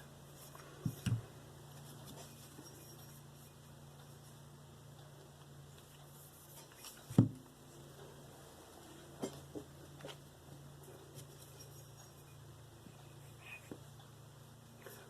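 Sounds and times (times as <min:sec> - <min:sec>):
objects knocking on workbench: 0:07.1 - 0:07.4.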